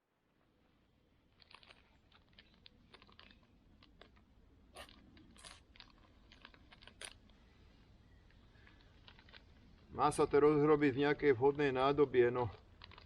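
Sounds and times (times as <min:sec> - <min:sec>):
plastic food packet crinkling: 0:01.3 - 0:07.5, 0:08.1 - 0:13.0.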